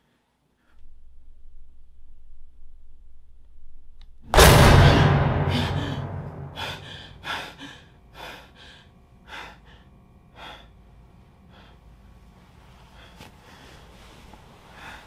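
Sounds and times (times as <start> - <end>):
loud boom: 4.4 - 7.3
person gasping and panting: 5.5 - 10.7.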